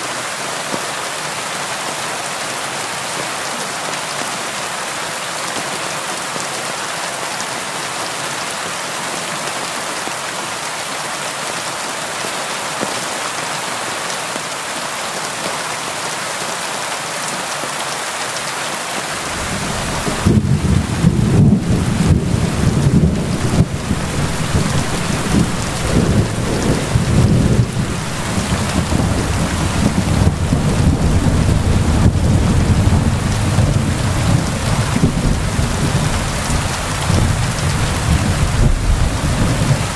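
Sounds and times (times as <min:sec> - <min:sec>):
rain against a window: 0:19.1 - 0:39.9
thunder rumbling: 0:19.2 - 0:39.9.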